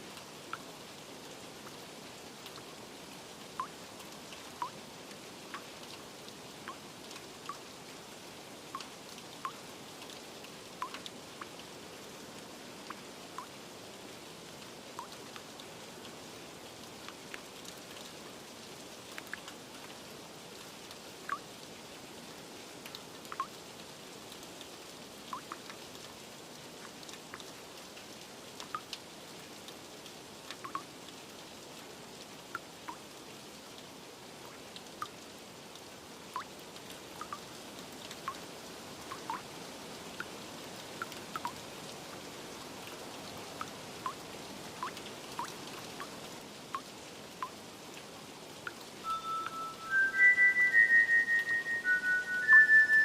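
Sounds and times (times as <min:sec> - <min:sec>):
rain hiss: 0:00.0 - 0:53.0
raindrops tapping: 0:15.0 - 0:15.3, 0:30.5 - 0:30.9, 0:36.4 - 0:38.4, 0:39.0 - 0:39.5.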